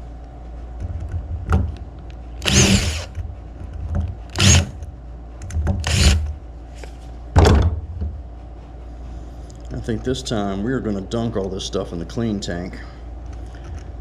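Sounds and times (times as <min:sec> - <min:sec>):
power driver bursts: 0:02.4 - 0:03.1, 0:04.3 - 0:04.7, 0:05.8 - 0:06.2.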